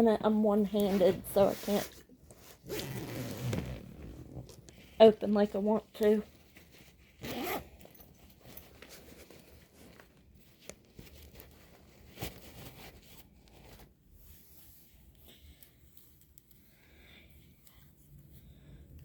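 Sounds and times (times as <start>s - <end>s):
bag rustling and crinkling: 0.7s - 5.1s, 6.0s - 13.9s.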